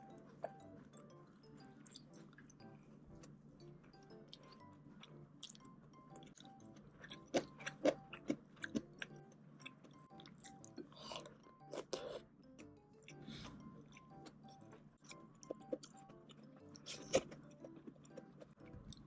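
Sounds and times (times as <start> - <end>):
soft background music: 0.0 - 19.0
person chewing: 4.2 - 12.3, 13.0 - 19.0.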